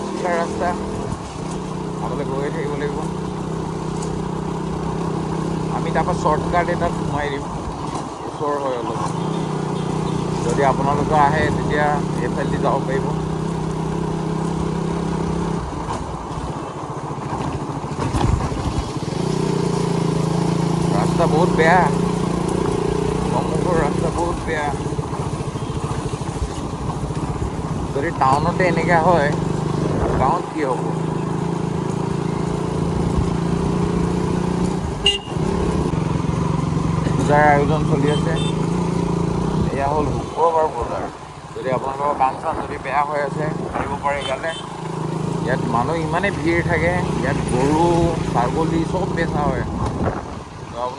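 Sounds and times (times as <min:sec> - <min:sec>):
motorcycle engine running: 0:00.0 - 0:50.9
horn toot: 0:35.0 - 0:35.6, 0:37.7 - 0:38.9, 0:44.0 - 0:44.8.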